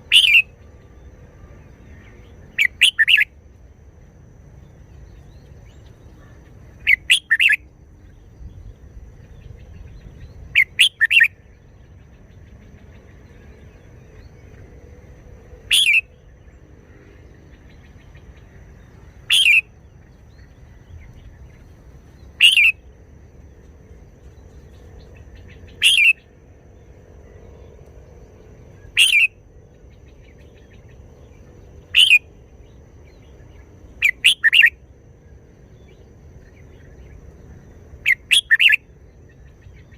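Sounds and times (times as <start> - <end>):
bulbul calling: 0.0 - 0.6, 2.5 - 3.3, 6.8 - 7.6, 9.9 - 11.4, 15.7 - 16.1, 19.3 - 19.7, 22.4 - 22.8, 25.2 - 26.3, 28.9 - 29.4, 31.9 - 32.3, 34.0 - 34.8, 38.0 - 38.8.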